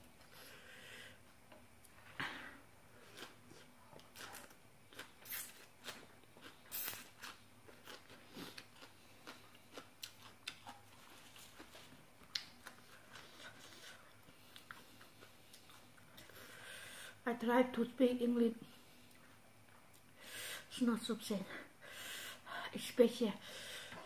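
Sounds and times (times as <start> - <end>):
person chewing crunchy food: 2.9 - 16.4.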